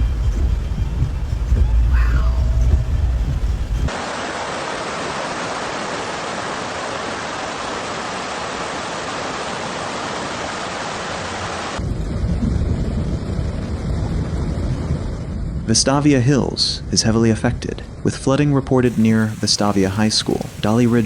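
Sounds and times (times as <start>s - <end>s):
deep rumbling noise: 0.0s - 3.9s, 11.8s - 15.8s
storm water hissing: 0.0s - 11.9s, 18.9s - 21.0s.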